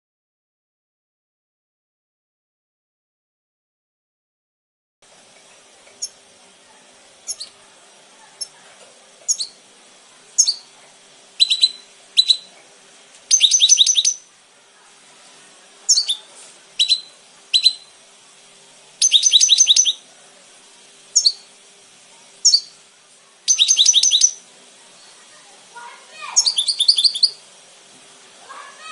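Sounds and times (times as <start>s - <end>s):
bird chirping and trilling: 6.0s - 6.2s, 7.2s - 7.6s, 8.3s - 8.6s, 9.3s - 9.6s, 10.4s - 10.7s, 11.4s - 12.5s, 13.3s - 14.3s, 15.9s - 18.0s, 19.0s - 20.0s, 21.1s - 21.5s, 22.4s - 22.8s, 23.4s - 24.4s, 26.1s - 27.5s.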